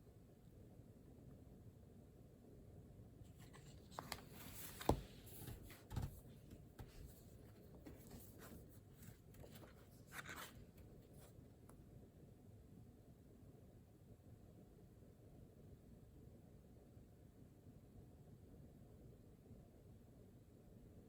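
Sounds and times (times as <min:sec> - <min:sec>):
soft knocks on desk: 0:04.8 - 0:07.2.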